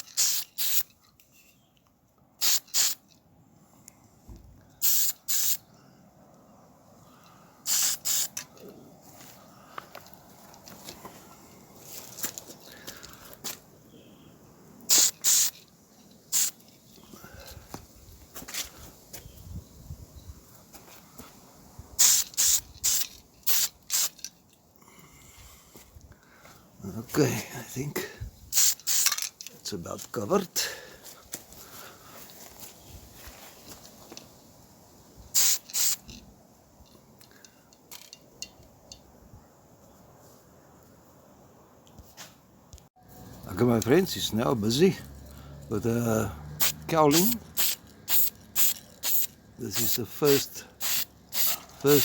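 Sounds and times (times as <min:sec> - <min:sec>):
spray paint hissing in bursts: 0:00.0 - 0:01.0, 0:02.4 - 0:03.0, 0:04.8 - 0:05.7, 0:07.6 - 0:08.5, 0:14.8 - 0:15.7, 0:16.3 - 0:16.6, 0:22.0 - 0:24.2, 0:28.5 - 0:29.2, 0:35.3 - 0:36.1, 0:46.6 - 0:52.0.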